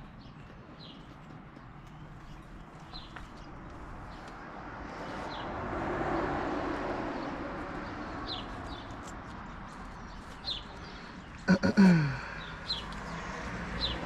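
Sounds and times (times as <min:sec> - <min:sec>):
small birds chirping: 0:00.0 - 0:05.6, 0:07.2 - 0:14.0.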